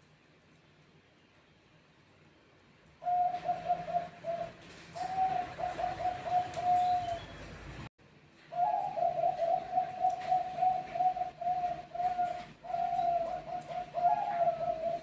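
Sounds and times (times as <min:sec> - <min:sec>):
doves cooing: 0:03.0 - 0:07.8, 0:08.5 - 0:15.0.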